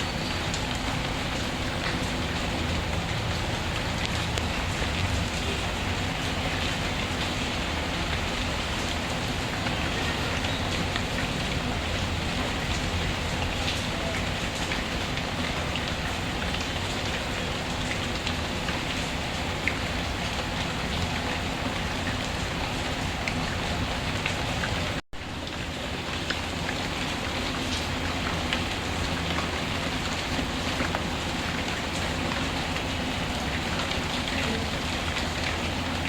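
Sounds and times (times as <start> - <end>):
steady rain hiss: 0.0 - 36.0.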